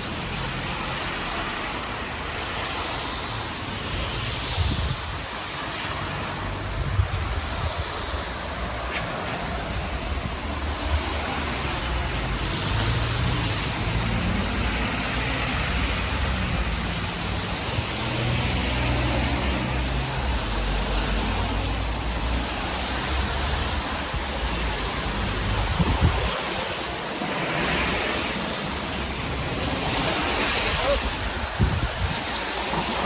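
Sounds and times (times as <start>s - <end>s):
wind buffeting microphone: 3.9s - 18.8s, 21.8s - 27.0s, 27.8s - 33.0s.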